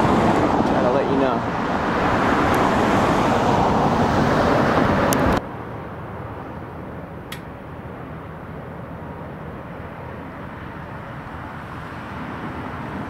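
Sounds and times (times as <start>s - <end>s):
outdoor rushing noise: 0.0s - 13.0s
faint click: 7.3s - 7.5s.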